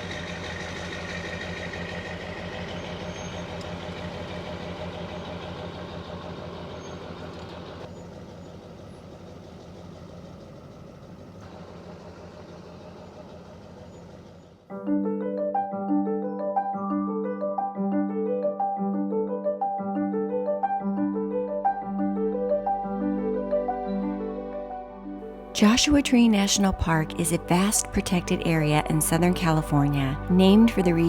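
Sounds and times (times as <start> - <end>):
truck engine running: 0.0 - 14.7, 25.6 - 31.0.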